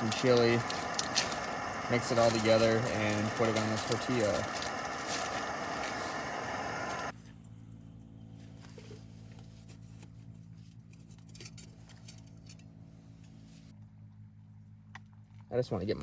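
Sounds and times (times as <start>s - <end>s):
small items clicking and rustling: 0.0s - 6.1s
steady low hum: 0.0s - 8.6s.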